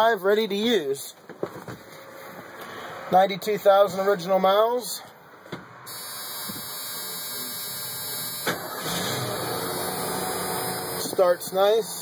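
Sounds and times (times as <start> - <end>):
starter motor cranking: 5.9 - 11.2.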